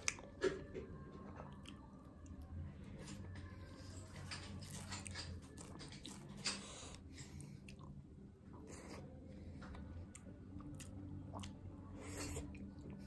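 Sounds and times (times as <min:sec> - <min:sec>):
chewing and wet mouth smacks: 0:00.0 - 0:00.3, 0:09.6 - 0:13.0.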